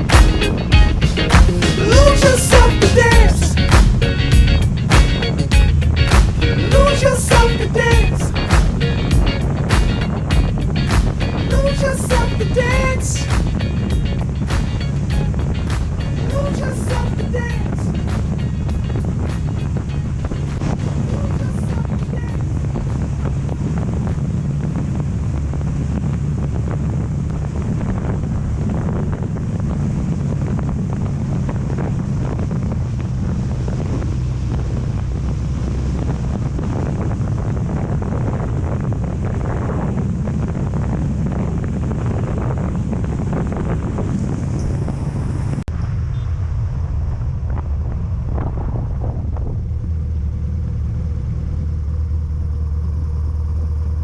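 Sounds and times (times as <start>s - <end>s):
motorcycle engine running: 0.0s - 16.3s
wind rushing over microphone: 0.0s - 51.5s.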